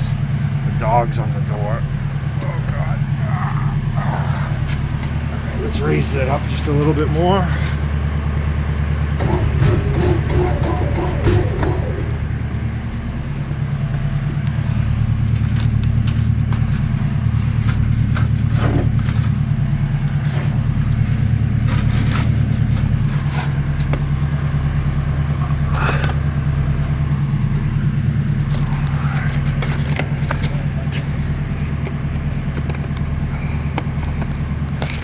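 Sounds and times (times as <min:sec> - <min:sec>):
hydraulic pump motor humming: 0:00.2 - 0:16.4.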